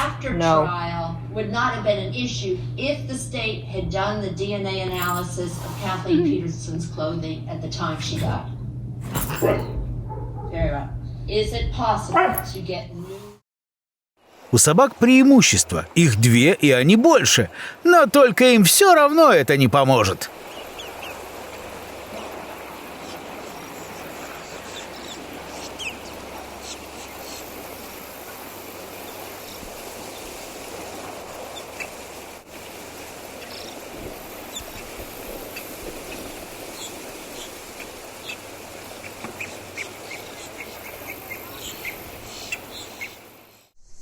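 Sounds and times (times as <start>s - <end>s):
steady background hiss: 14.3s - 43.6s.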